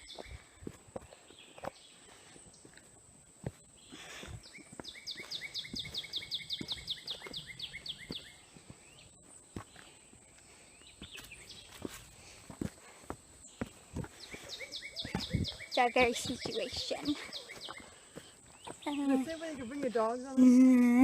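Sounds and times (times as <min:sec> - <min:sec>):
songbird trilling: 0:04.5 - 0:09.1, 0:13.5 - 0:18.0
footsteps thudding: 0:11.0 - 0:19.0.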